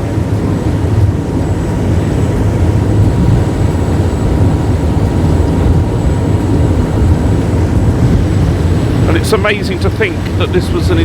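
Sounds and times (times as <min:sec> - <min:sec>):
boat engines running at speed: 0:00.0 - 0:11.0.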